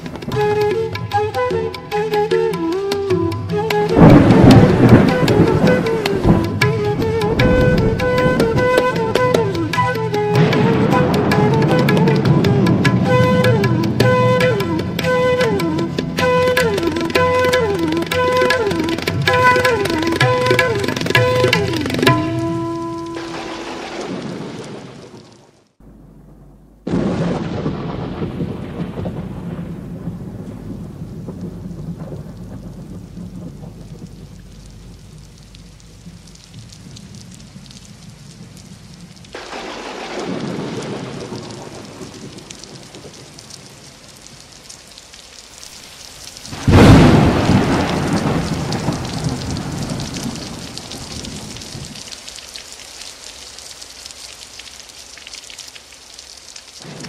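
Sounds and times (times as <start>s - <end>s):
heavy rain: 0.0s - 57.0s
thunder rumbling: 3.6s - 53.1s, 56.7s - 57.0s
loud thunderclap: 3.9s - 15.3s, 23.2s - 37.7s, 39.3s - 43.9s, 46.4s - 52.1s, 56.8s - 57.0s.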